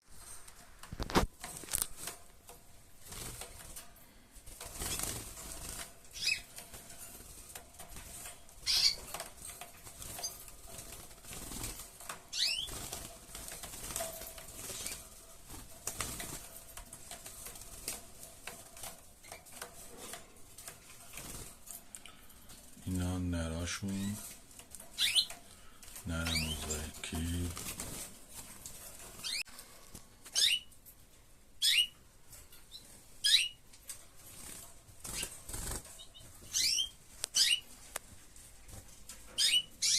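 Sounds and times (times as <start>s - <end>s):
wings flapping: 0.2s - 21.8s, 23.8s - 30.5s, 33.9s - 39.9s
bird chirps: 6.1s - 6.5s, 12.3s - 12.7s, 25.0s - 25.3s, 30.3s - 30.7s, 31.6s - 32.0s, 32.6s - 33.6s, 36.0s - 37.7s, 39.4s - 39.9s.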